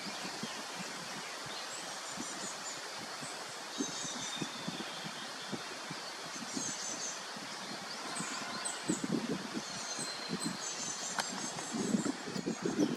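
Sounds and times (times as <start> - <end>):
small birds chirping: 0.0 - 12.9
steady outdoor hiss: 0.0 - 12.9.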